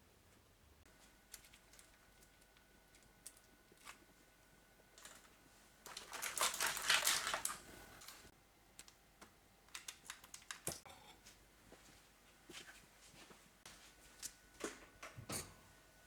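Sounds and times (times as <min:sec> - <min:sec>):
kitchen rustling and clicking: 0:04.9 - 0:08.9.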